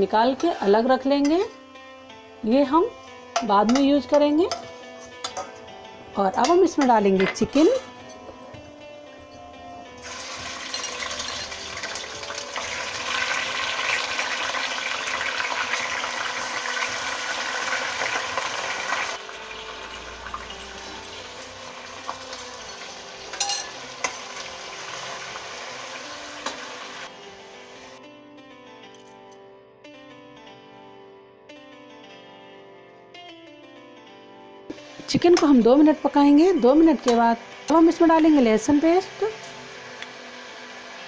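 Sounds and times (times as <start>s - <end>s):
metal spoon clinking on pan: 3.4s - 5.5s, 10.1s - 11.6s, 22.0s - 24.2s
chicken sizzling in oil: 10.0s - 27.8s, 37.8s - 41.0s.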